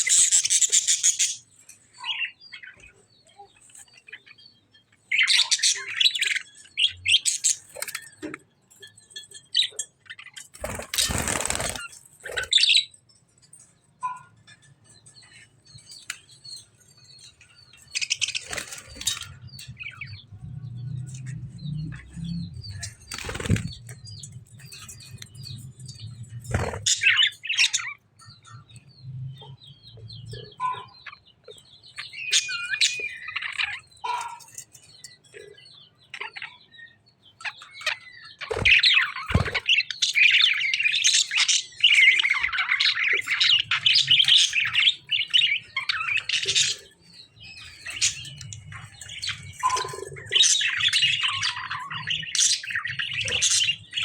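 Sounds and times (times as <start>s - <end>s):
birds chirping and squawking: 0.0s - 54.0s
wing flaps: 10.6s - 11.9s.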